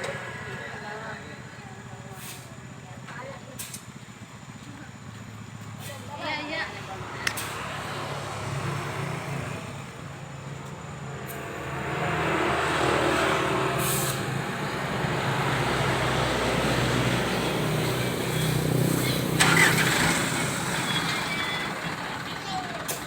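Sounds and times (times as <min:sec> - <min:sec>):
truck diesel engine running: 0:00.0 - 0:23.0
short hiss: 0:19.1 - 0:21.1.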